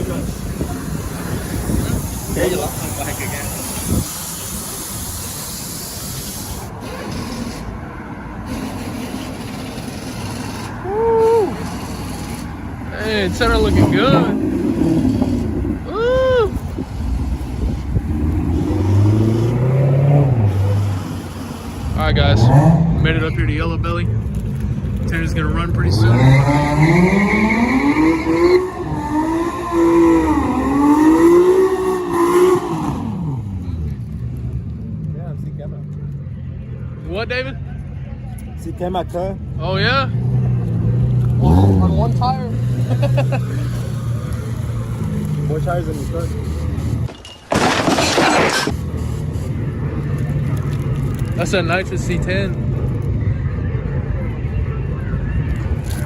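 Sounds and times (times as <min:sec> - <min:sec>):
wind noise: 0:00.0 - 0:04.9, 0:13.1 - 0:21.0
vehicle road noise: 0:00.0 - 0:56.0
car engine at full throttle: 0:08.4 - 0:36.5, 0:39.2 - 0:47.7.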